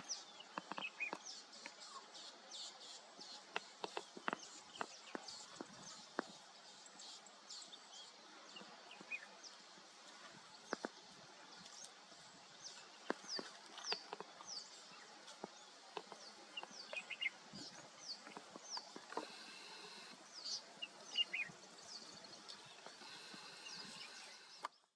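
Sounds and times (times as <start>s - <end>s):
birds chirping: 0.0s - 24.9s
faint clicks: 3.5s - 6.4s, 18.2s - 20.2s.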